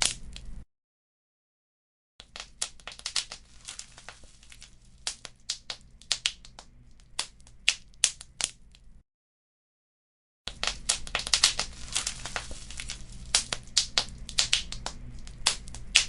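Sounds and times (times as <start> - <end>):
wood fire crackling: 2.2 - 8.9, 10.5 - 16.0
faint low rumble: 10.7 - 16.0.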